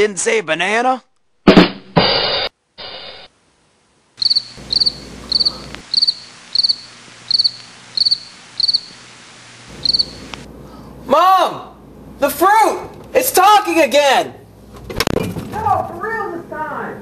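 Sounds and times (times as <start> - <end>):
noisy crash: 1.4 - 3.3
steady hiss: 2.8 - 10.6
crickets chirping: 4.2 - 10.5.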